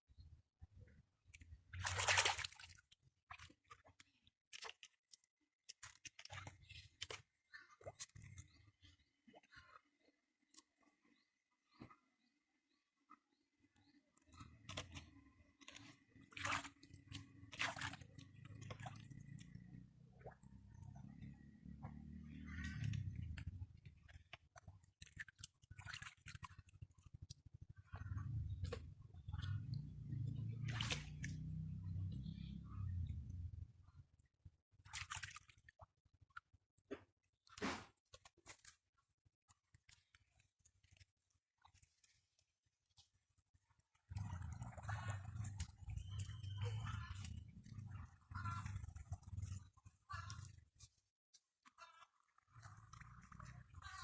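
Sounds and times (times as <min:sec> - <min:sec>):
hands squelching in wet mud: 0:01.4 - 0:09.0, 0:14.3 - 0:21.1, 0:21.8 - 0:27.0, 0:27.9 - 0:33.3, 0:34.8 - 0:35.8, 0:43.9 - 0:51.7
hands squelching in mud: 0:01.8 - 0:03.8.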